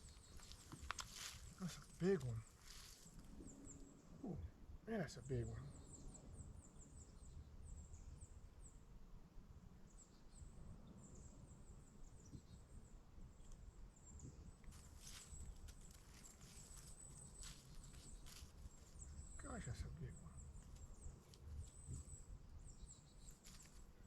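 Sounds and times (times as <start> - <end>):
faint crackling rustles: 0.0 - 4.1, 13.4 - 24.0.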